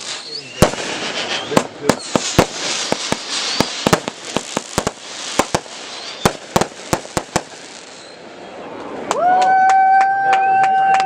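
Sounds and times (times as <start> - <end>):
fireworks crackling hiss: 0.0 - 9.1
fireworks bangs: 0.0 - 9.2.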